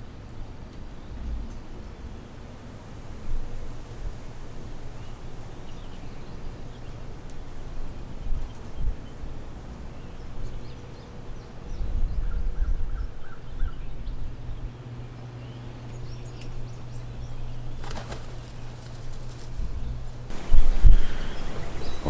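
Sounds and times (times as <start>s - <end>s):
birds calling faintly: 0.0s - 22.0s
wind rumbling on microphone: 3.2s - 14.8s, 18.5s - 22.0s
steady low hum: 9.0s - 22.0s.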